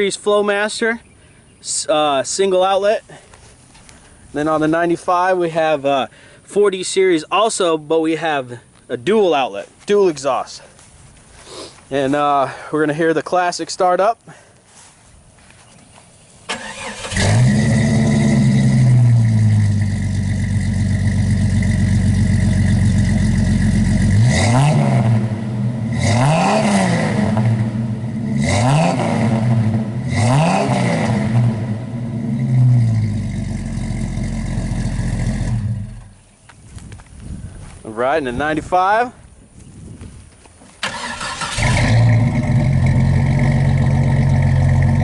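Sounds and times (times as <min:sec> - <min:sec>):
car engine revving: 0:16.5 - 0:36.1, 0:40.9 - 0:45.0
car engine starting and idling: 0:16.5 - 0:36.2, 0:40.8 - 0:45.0.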